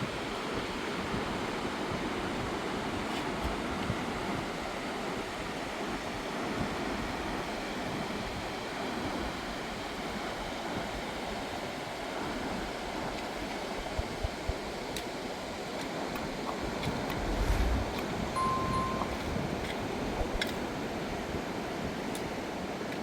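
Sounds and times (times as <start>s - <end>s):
river rushing: 16.6s - 19.5s
low thumps: 17.0s - 18.4s.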